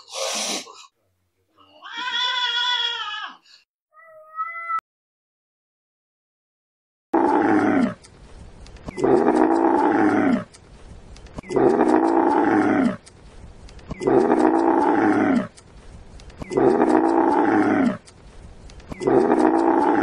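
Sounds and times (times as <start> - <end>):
large animal drawn-out call: 16.5 - 18.0, 19.0 - 20.0.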